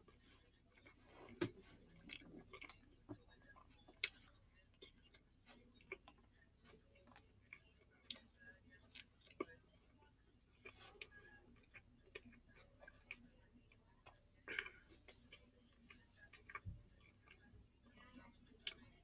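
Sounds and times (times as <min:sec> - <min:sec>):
person chewing: 0:00.1 - 0:08.3, 0:14.0 - 0:17.5.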